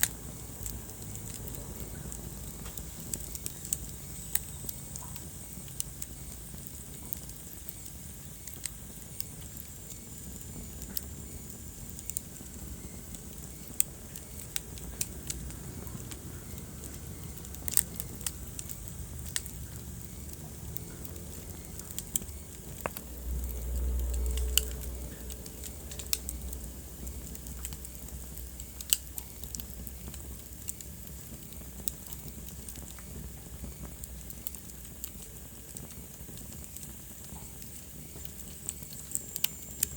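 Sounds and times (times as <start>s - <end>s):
wood fire crackling and popping: 0.0s - 39.9s
low rumble: 15.0s - 28.6s.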